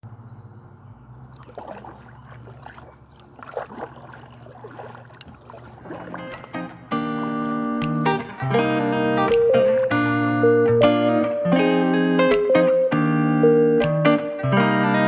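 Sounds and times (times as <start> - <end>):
kayak paddle splashing water: 1.0 - 10.5
music: 6.9 - 15.0.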